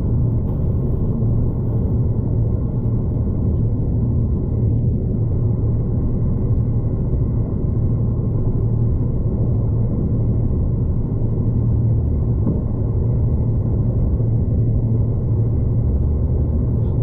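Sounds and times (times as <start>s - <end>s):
passenger train rumble: 0.0s - 17.0s.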